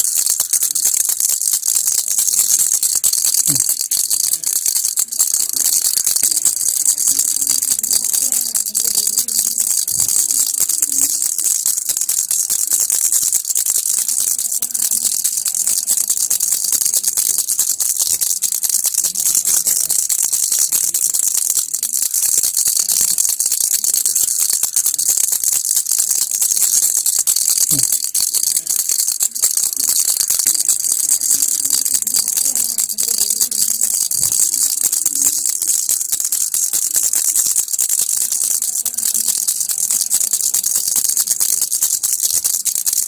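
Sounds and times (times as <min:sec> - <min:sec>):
baby rattle shaken: 0:00.0 - 0:43.0.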